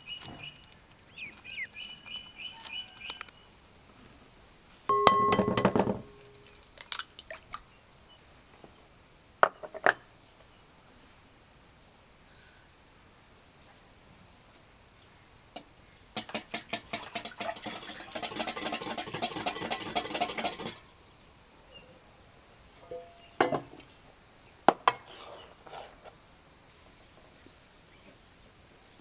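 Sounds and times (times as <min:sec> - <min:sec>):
cutlery clinking on dishware: 0:04.9 - 0:06.6, 0:16.2 - 0:20.8, 0:22.8 - 0:23.7
utensil beating a ringing bowl: 0:04.9 - 0:06.6, 0:16.2 - 0:20.8.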